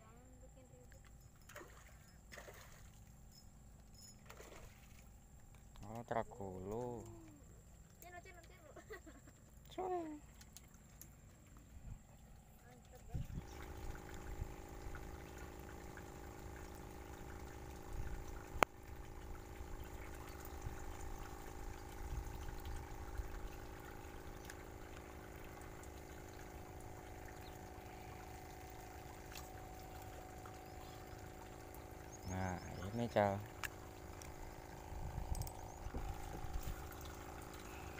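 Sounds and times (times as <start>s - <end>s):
running water: 1.4s - 37.9s
machine hum: 11.8s - 37.9s.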